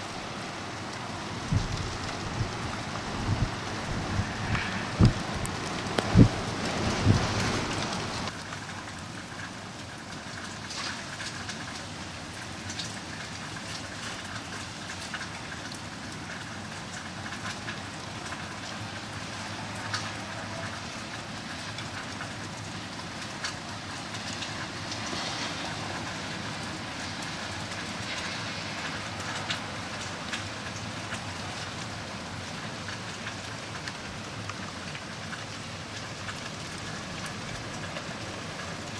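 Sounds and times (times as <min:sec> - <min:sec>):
freezing rain hissing: 0:00.0 - 0:38.9.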